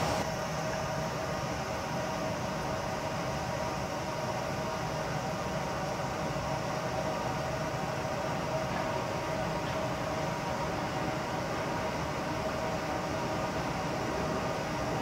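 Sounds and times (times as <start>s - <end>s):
distant freight train rumble: 0.0s - 0.2s
constant hiss: 0.0s - 0.5s.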